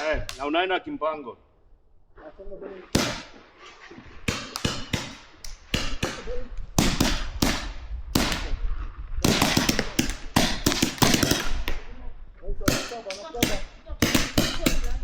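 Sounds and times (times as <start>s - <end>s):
paintball markers firing: 2.9s - 3.4s, 4.2s - 8.6s, 9.2s - 11.9s, 12.7s - 15.0s.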